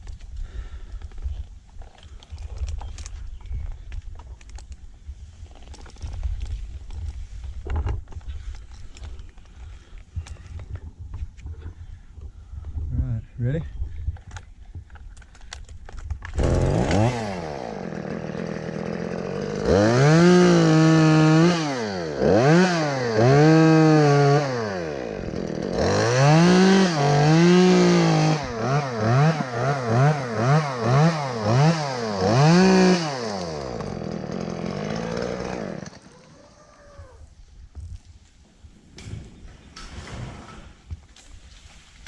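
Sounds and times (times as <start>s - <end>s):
chainsaw revving and cutting wood: 16.3s - 36.4s.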